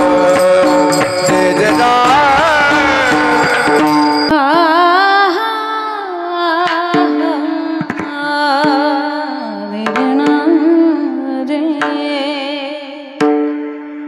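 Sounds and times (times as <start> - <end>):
steady drone: 0.0 - 4.4
drum strikes: 0.0 - 4.6, 6.7 - 9.0, 13.2 - 13.7
wordless wavering singing: 0.0 - 5.5.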